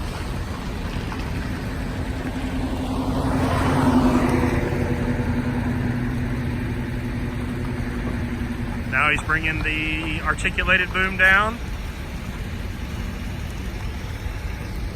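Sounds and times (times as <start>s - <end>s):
truck engine driving hydraulic pump: 0.0s - 14.9s.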